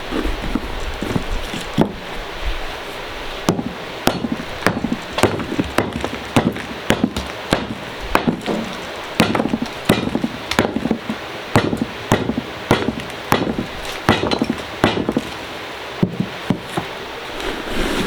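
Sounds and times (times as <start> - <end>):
dried clay being pounded: 3.4 - 15.4, 16.0 - 16.9.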